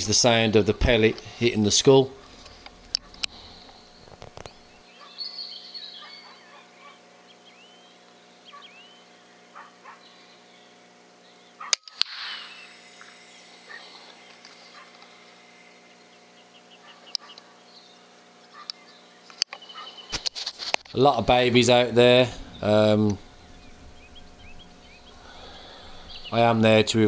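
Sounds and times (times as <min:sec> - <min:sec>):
faint short bird calls: 0:21.7 - 0:26.8.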